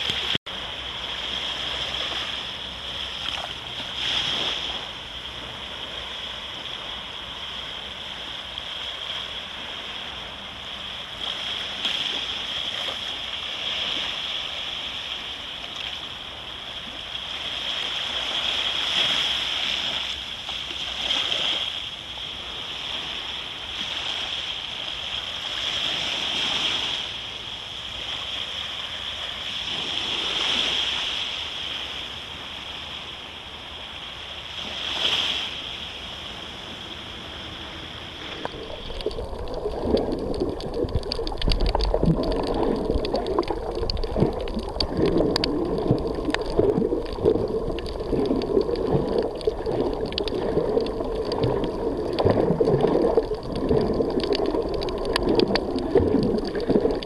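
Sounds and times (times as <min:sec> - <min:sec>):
sea waves washing onto beach: 0:00.0 - 0:57.0
water gurgling: 0:36.8 - 0:57.0.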